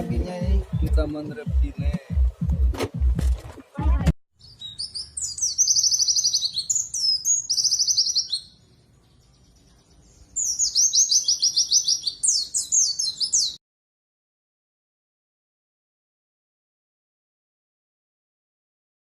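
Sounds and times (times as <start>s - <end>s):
songbird twittering trills: 4.4s - 13.6s.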